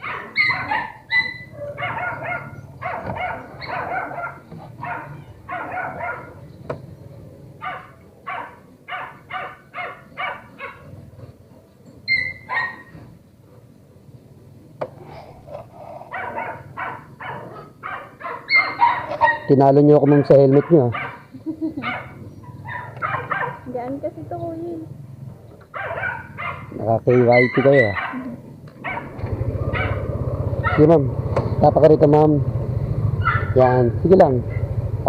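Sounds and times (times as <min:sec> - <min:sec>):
dog barking: 0:00.0 - 0:06.4, 0:07.6 - 0:10.9, 0:12.1 - 0:13.7, 0:16.1 - 0:23.8, 0:25.7 - 0:30.9, 0:33.2 - 0:34.7.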